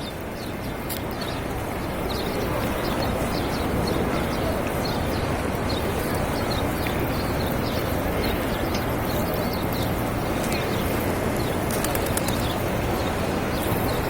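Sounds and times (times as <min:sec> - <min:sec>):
busy plaza din: 0:00.0 - 0:14.0.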